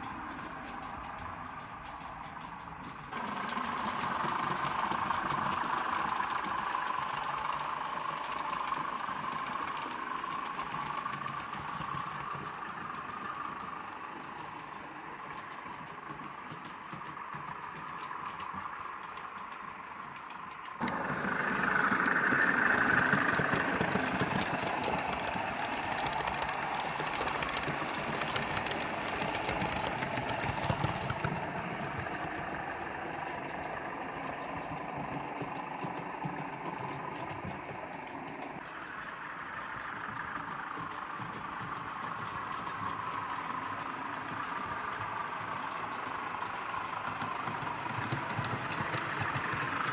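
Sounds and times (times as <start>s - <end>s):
faint rapid clicking: 0.0s - 49.9s
model train whirring hum: 0.0s - 49.9s.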